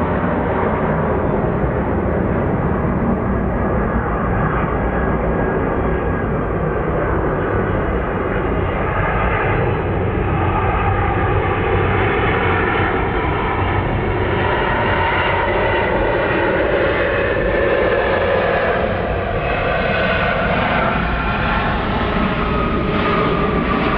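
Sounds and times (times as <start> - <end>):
jet airliner engines running: 0.0 - 23.9.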